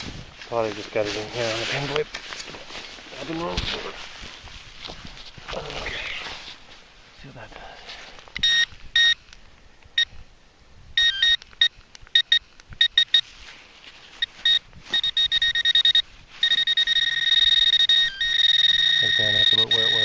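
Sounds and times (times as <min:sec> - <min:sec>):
metal detector pinpointer beeping: 0:08.4 - 0:09.2, 0:11.0 - 0:13.3, 0:14.2 - 0:20.0.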